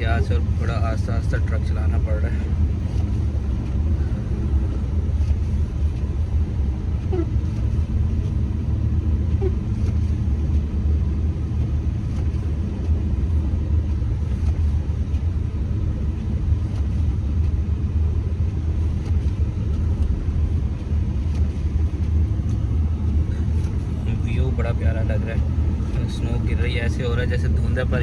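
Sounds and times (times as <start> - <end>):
truck rumbling on snowy road: 0.0 - 28.0.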